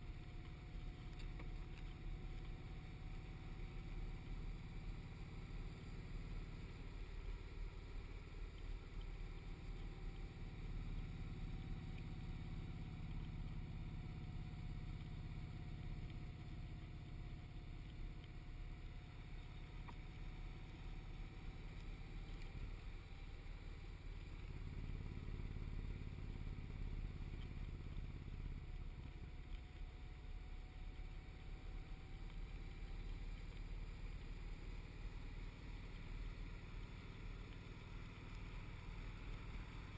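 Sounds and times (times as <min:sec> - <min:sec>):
motorcycle engine rumble: 0:00.0 - 0:39.9
wind and road noise: 0:00.0 - 0:39.9.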